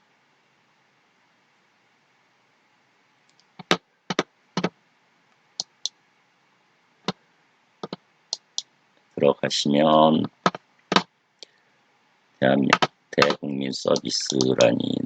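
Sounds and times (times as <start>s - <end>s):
computer typing and clicking: 3.3s - 4.7s, 5.6s - 6.0s, 7.8s - 8.6s, 9.9s - 11.1s, 12.6s - 14.8s.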